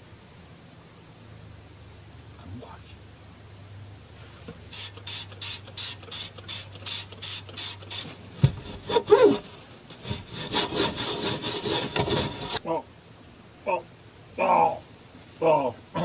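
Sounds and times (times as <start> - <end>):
cloth scrubbing paintwork: 4.7 - 12.6.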